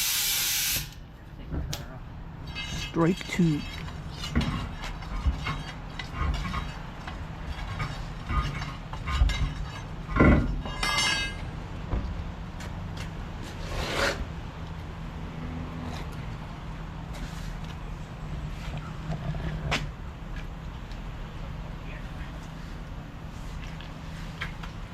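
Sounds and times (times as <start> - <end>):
metal clinks and knocks: 2.4 - 11.5.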